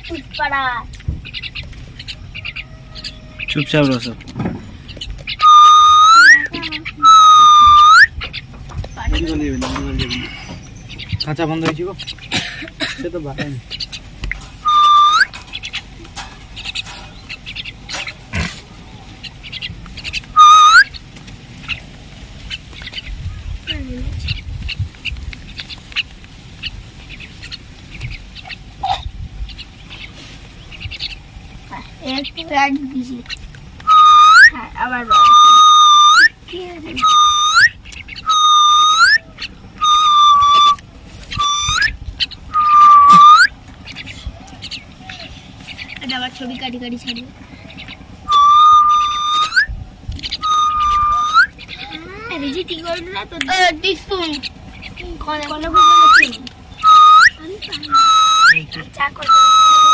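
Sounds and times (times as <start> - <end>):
high bird chirps: 4.8 - 11.3, 14.6 - 15.9, 19.4 - 21.1, 33.2 - 44.9, 47.8 - 52.0, 53.5 - 59.9
rising whistles: 5.4 - 8.2, 14.6 - 15.4, 20.3 - 21.0, 33.8 - 36.4, 37.0 - 43.6, 48.2 - 51.6, 55.7 - 59.9.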